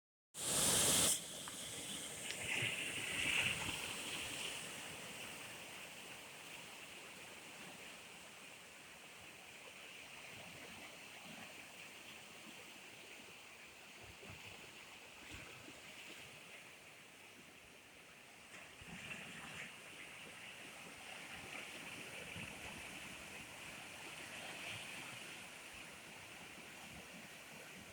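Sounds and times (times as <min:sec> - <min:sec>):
water rushing: 0:00.4 - 0:11.9.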